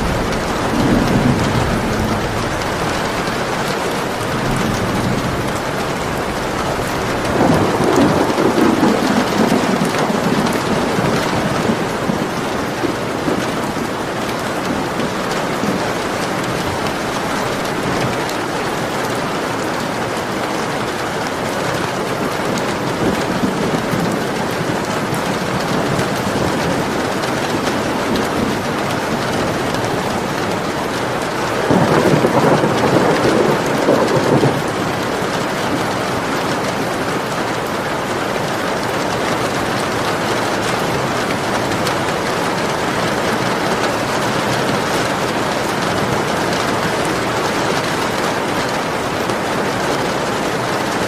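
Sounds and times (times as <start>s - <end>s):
thunder rolling: 0.0s - 19.9s, 21.2s - 37.3s
rain falling: 0.0s - 51.0s.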